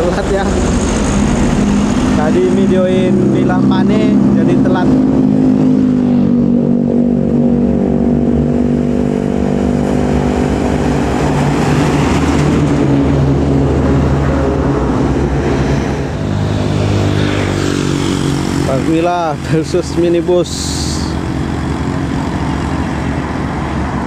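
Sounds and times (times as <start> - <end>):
heavy vehicle engine hum: 0.0 - 24.0.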